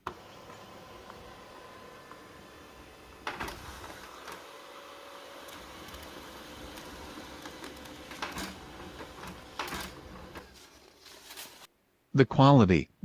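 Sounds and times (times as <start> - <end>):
laser printer whirring: 0.0 - 11.7
paper feed clicks: 0.0 - 11.7.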